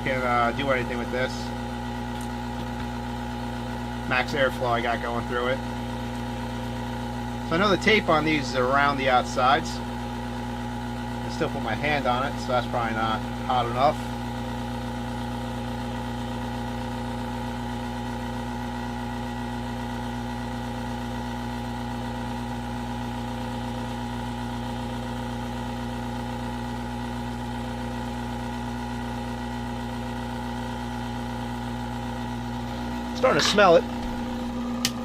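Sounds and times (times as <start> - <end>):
hot-air blower droning: 0.0 - 35.0.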